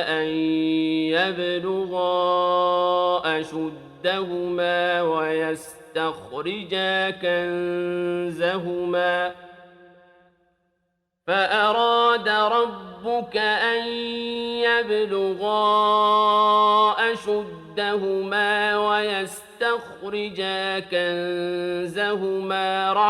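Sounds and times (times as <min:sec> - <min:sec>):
man chanting melodic recitation: 0:11.3 - 0:23.0.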